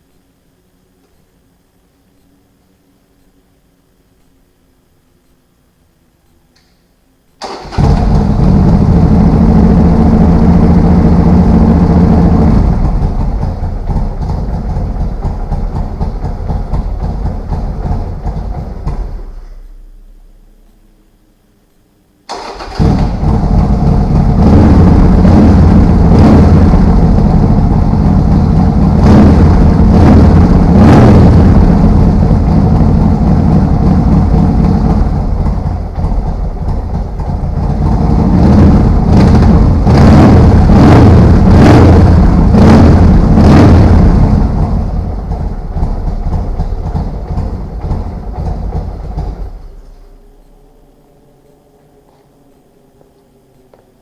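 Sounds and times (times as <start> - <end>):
engine throttle blips: 7.4 - 54.0
motorcycle engine running: 7.6 - 20.7, 22.4 - 51.2.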